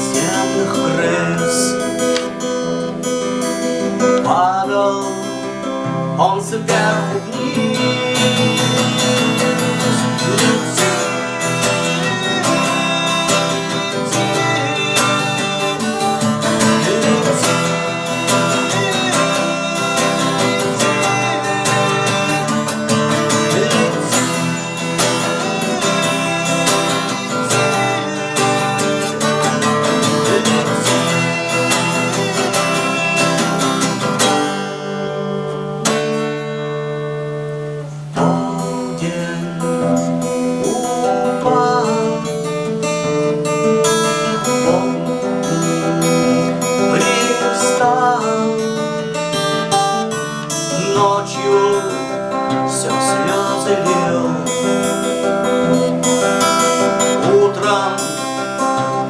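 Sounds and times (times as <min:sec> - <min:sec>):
acoustic guitar playing: 0:00.0 - 0:59.0.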